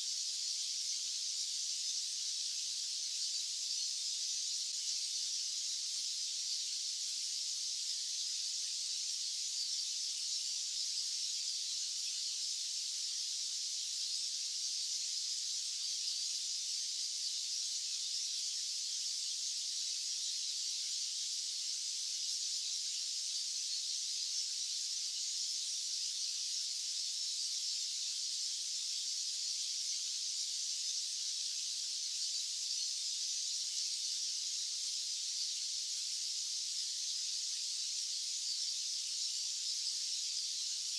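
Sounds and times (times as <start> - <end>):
high-pitched white-noise hiss: 0.0 - 40.9.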